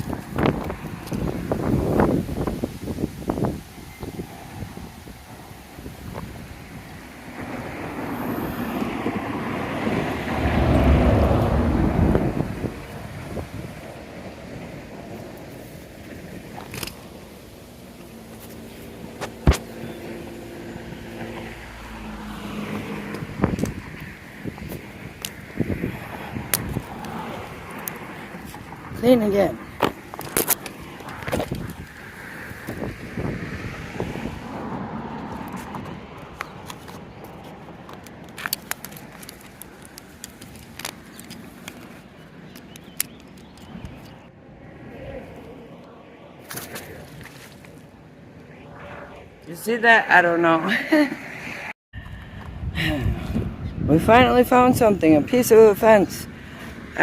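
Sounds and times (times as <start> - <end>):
car passing: 0.0 - 40.0, 43.7 - 57.0
wind noise: 0.0 - 57.0
vehicle driving past: 7.2 - 14.6, 19.7 - 24.5, 48.2 - 50.4.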